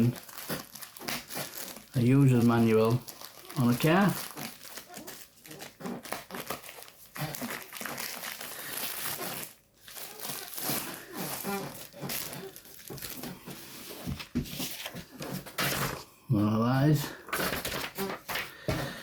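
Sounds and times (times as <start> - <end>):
packaging crinkling and rustling: 0.0 - 16.0, 16.8 - 19.0.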